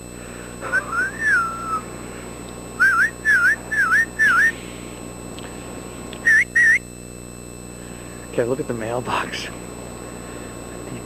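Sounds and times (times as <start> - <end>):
person whistling: 0.6 - 1.9, 2.8 - 4.6, 6.2 - 6.8.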